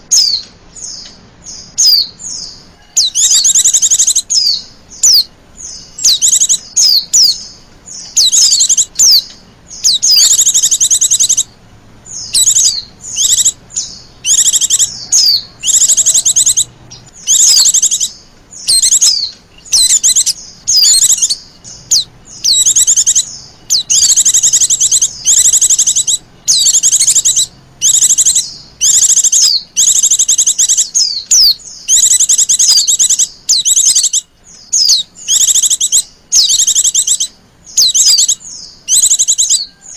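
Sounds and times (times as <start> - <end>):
high-pitched bird chattering trills: 0.0 - 39.9.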